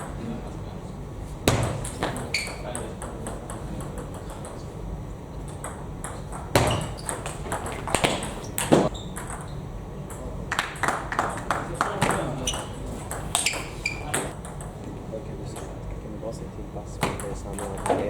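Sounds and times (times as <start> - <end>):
table tennis ball clicks: 5.5 - 9.5.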